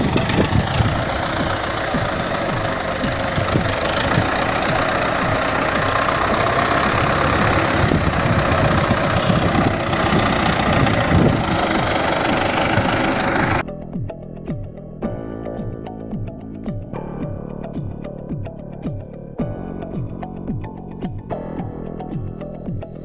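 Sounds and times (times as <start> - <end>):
diesel tractor engine idling: 0.0 - 13.6.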